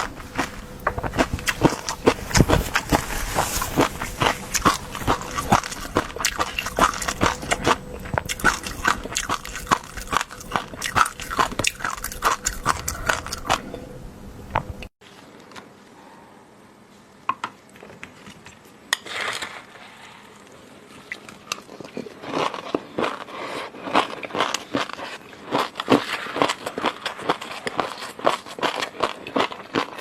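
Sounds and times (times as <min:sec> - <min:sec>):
chewing clicks from mouth: 0:03.7 - 0:13.6.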